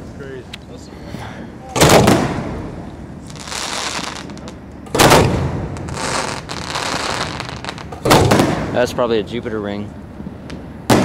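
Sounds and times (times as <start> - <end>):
firework boom: 1.8 - 2.8, 7.2 - 8.9
firework crackling: 1.8 - 9.1.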